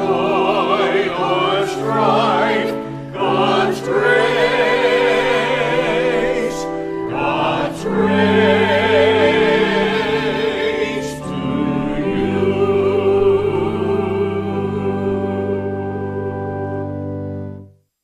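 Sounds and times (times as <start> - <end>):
choir singing slowly: 0.0 - 17.4.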